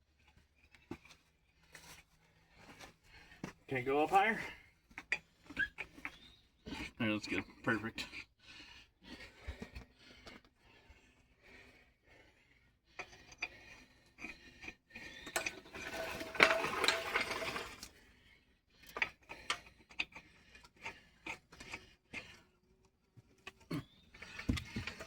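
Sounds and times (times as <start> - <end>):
hand tools clicking and ratcheting: 15.2 - 17.9, 23.5 - 25.0
metal rattling: 15.3 - 17.9.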